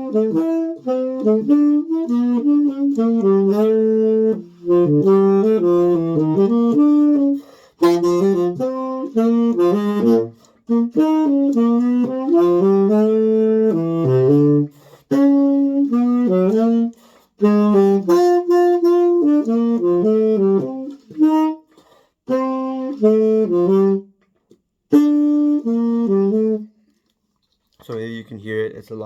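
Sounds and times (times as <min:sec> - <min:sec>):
tenor saxophone jazz melody: 0:00.0 - 0:27.0
player breathing: 0:07.4 - 0:07.8, 0:17.0 - 0:17.4, 0:21.7 - 0:22.2.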